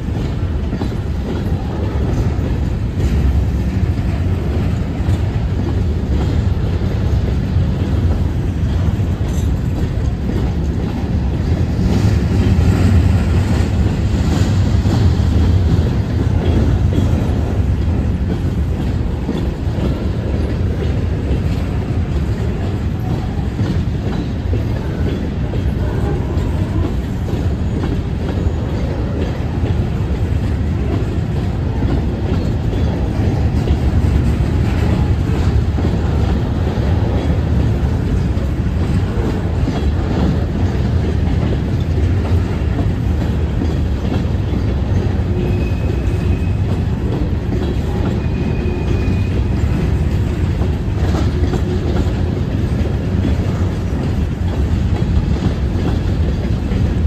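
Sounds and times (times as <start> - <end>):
freight train rumbling past: 0.0 - 57.0
wheels clacking over rail joints: 0.0 - 57.0.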